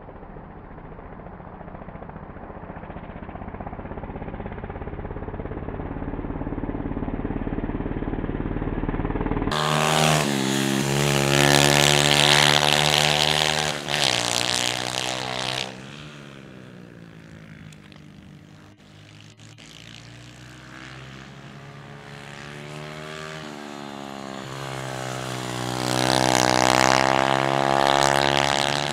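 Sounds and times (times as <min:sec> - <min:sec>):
motorcycle engines revving past: 0:00.0 - 0:28.9.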